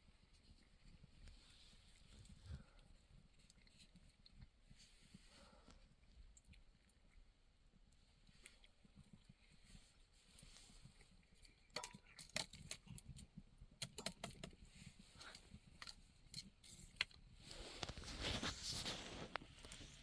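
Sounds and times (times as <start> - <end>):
small handling clicks and taps: 13.8 - 14.6
rustling: 14.6 - 20.0.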